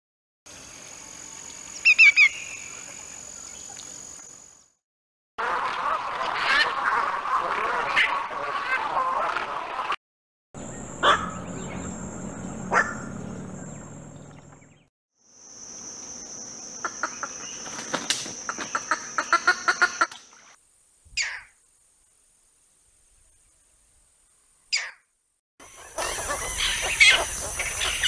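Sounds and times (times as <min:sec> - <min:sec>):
heron harsh calls: 0:10.6 - 0:14.0
heron short falling calls: 0:10.6 - 0:14.6
rapid clucking notes: 0:10.6 - 0:14.6
steady high whine: 0:10.6 - 0:14.7.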